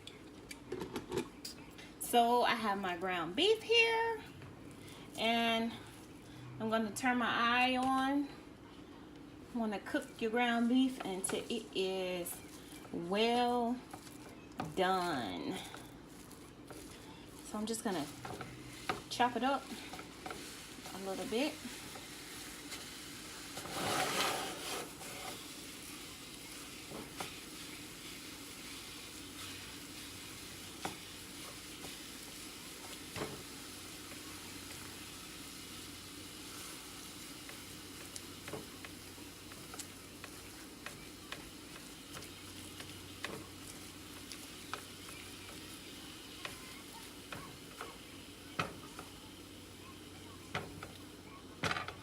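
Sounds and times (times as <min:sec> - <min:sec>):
meat sizzling in a frying pan: 0:09.8 - 0:52.0
utensil tapping and scraping pan: 0:17.8 - 0:22.8, 0:23.5 - 0:25.4, 0:37.4 - 0:49.2.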